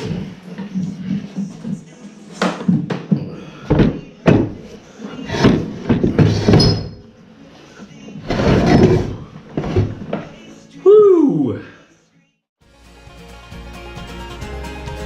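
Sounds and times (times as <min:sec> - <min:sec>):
clunking and scraping: 0:00.0 - 0:07.1, 0:08.1 - 0:10.5.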